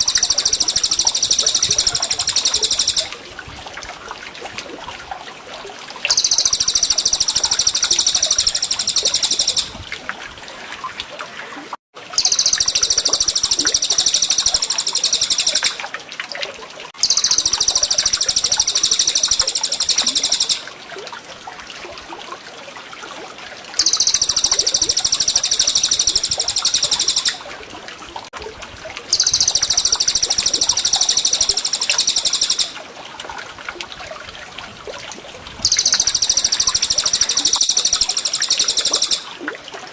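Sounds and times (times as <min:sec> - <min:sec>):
songbird rapid rolling trill: 0:00.0 - 0:03.1, 0:06.1 - 0:09.8, 0:12.2 - 0:15.8, 0:17.0 - 0:20.7, 0:23.8 - 0:27.4, 0:29.1 - 0:32.8, 0:35.6 - 0:39.3
trickling water: 0:00.0 - 0:39.9.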